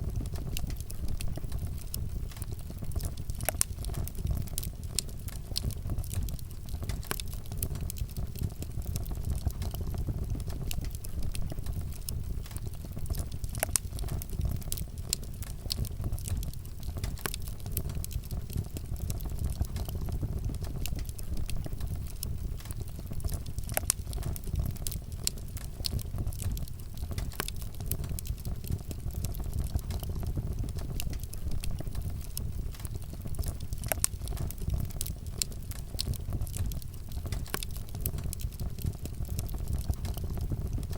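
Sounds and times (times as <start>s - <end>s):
burning wood crackling and popping: 0.0s - 40.9s
wood fire rumbling: 0.0s - 40.9s.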